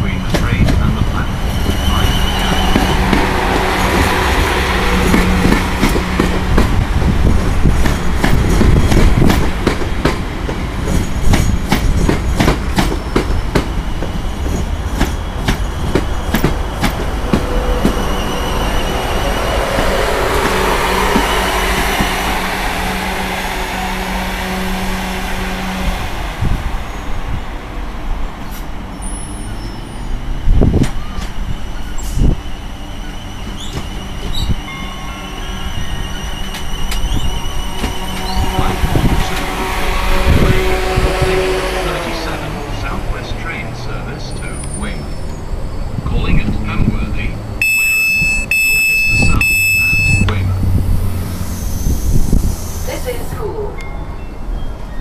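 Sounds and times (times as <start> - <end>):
traction equipment hum: 0.1 - 53.4
train wheels clicking over rail joints: 2.6 - 18.0.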